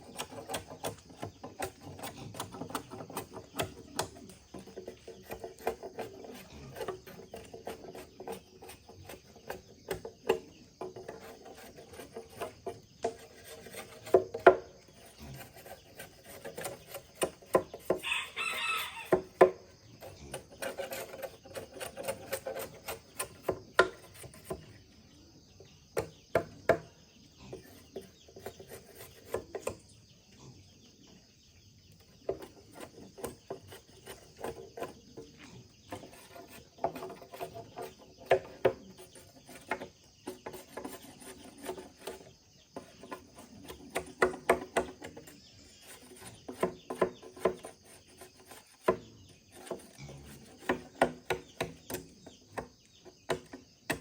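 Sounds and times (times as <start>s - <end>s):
rooster crowing: 18.0s - 19.4s
sharp knocks and taps: 22.1s - 24.7s, 49.6s - 54.0s.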